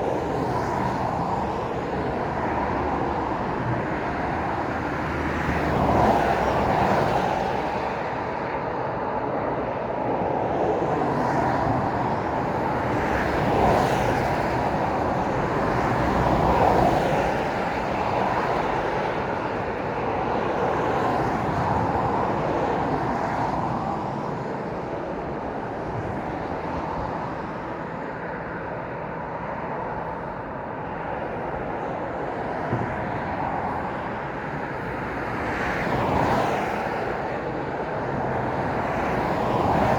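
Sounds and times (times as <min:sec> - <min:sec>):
road traffic passing: 0:12.3 - 0:39.9.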